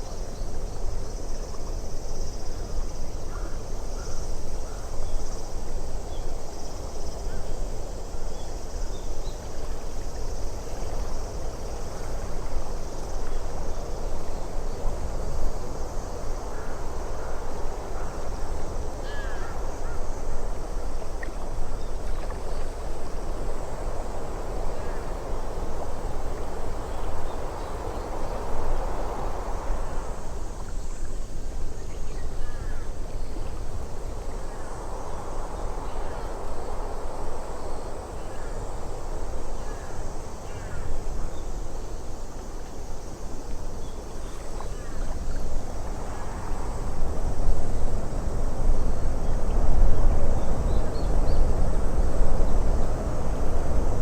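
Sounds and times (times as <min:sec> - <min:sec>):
steady rushing noise: 0:23.2 - 0:30.6.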